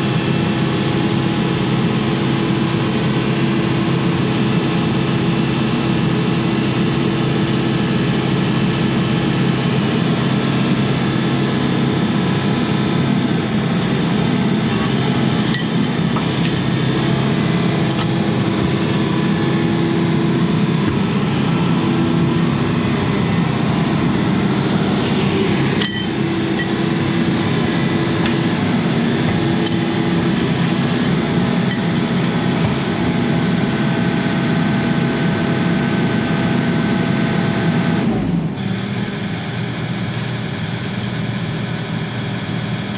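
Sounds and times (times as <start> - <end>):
excavator diesel engine running: 0.0 - 42.9
sharp metallic clinks: 15.5 - 19.7, 25.8 - 33.3, 40.9 - 42.1.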